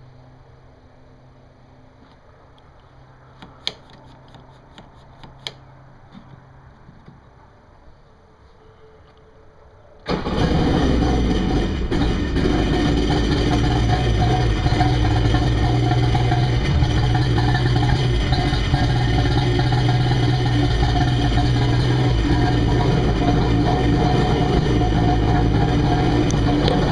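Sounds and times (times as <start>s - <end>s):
jet ski engine starting and idling: 10.0s - 26.9s.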